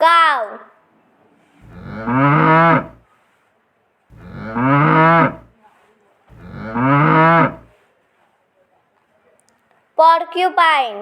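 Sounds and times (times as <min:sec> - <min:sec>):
cow mooing: 0:01.6 - 0:03.0, 0:04.1 - 0:05.5, 0:06.3 - 0:07.7.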